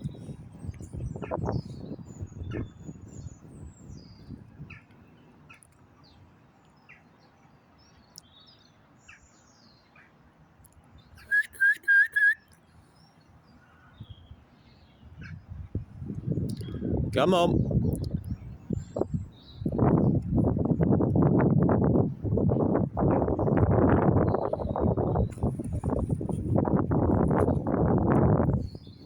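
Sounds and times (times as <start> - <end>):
loud whistled notes: 11.2 - 12.4.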